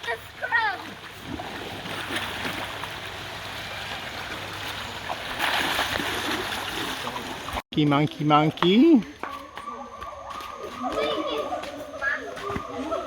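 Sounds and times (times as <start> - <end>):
water splashing and sloshing: 0.0 - 7.6.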